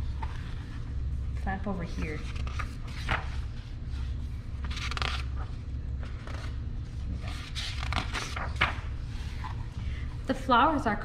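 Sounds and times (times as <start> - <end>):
book pages turning: 2.0 - 9.8.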